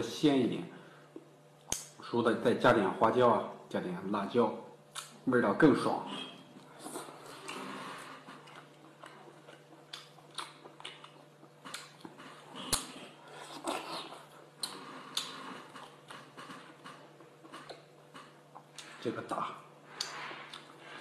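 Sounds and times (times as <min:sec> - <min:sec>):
wet mouth smacks and clicks: 0:01.6 - 0:01.9, 0:04.9 - 0:05.2
man chewing: 0:06.5 - 0:19.0, 0:19.9 - 0:21.0.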